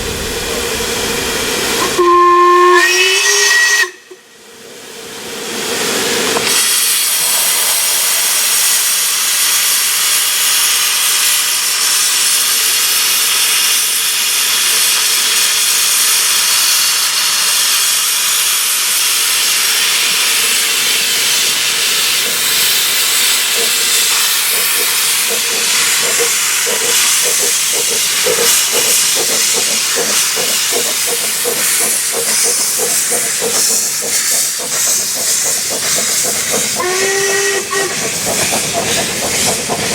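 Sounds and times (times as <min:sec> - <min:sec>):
steam locomotive hissing steam: 0:00.0 - 0:39.9
quick regular pulsing: 0:22.3 - 0:36.8.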